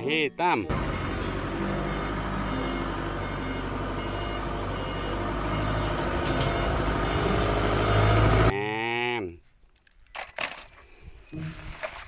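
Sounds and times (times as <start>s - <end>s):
engine rumble: 0.7s - 8.5s.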